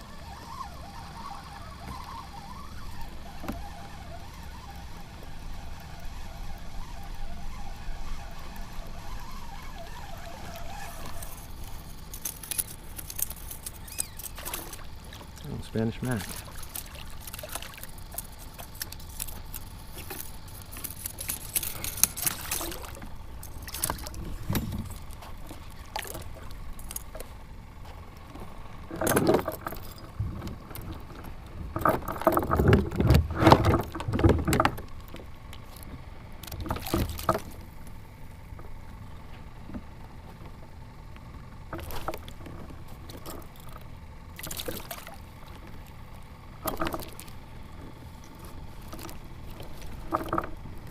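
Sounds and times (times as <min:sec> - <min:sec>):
water splashes: 0:14.2 - 0:27.3, 0:44.4 - 0:46.0
fish knocking and rattling: 0:16.2 - 0:27.3, 0:28.9 - 0:37.7, 0:46.6 - 0:50.9.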